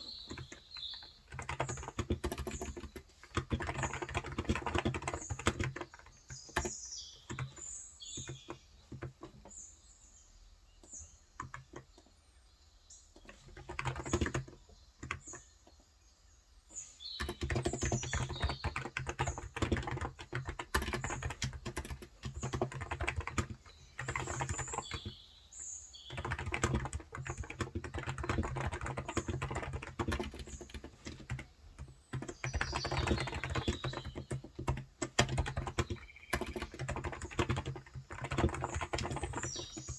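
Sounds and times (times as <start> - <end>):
keyboard typing: 0.0 - 9.5, 10.8 - 12.1, 13.2 - 15.5, 17.1 - 25.2, 26.0 - 39.9
birds chirping: 0.0 - 39.9.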